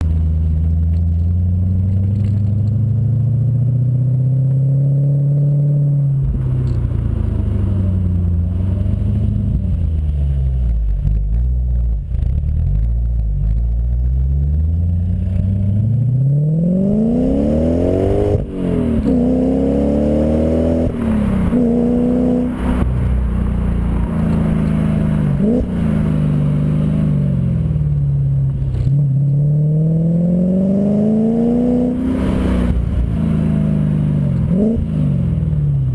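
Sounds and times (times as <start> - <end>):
car engine revving: 0.0 - 35.9.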